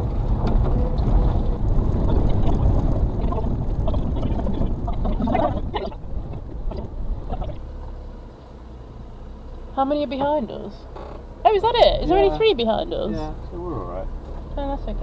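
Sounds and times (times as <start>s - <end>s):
body and ground noise: 0.0s - 7.7s
truck engine rumble in cab: 0.0s - 15.0s.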